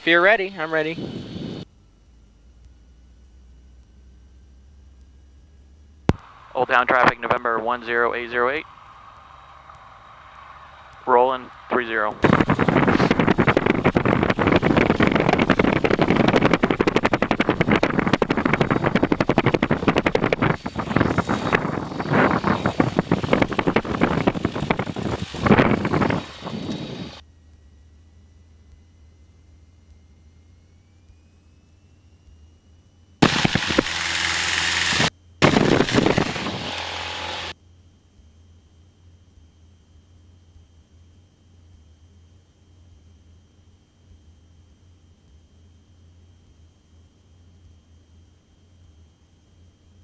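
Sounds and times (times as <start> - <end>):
propeller plane engine drone: 0.0 - 50.0
bursts of hissing static: 6.1 - 27.2, 33.2 - 37.5.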